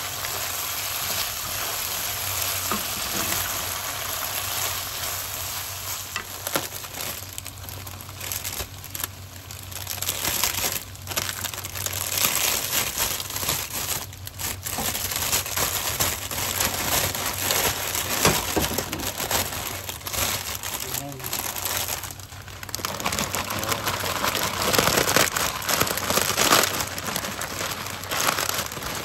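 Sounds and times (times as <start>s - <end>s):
food sizzling in hot oil: 0.0s - 9.7s.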